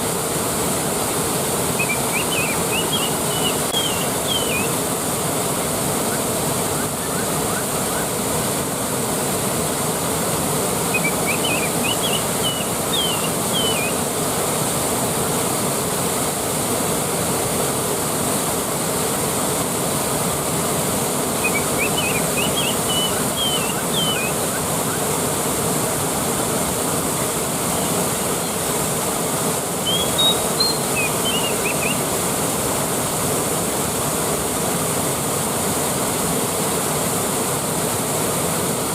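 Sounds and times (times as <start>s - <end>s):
waterfall rushing: 0.0s - 38.9s
bird chirping: 1.8s - 4.8s, 10.9s - 14.0s, 21.4s - 25.0s, 29.8s - 32.0s.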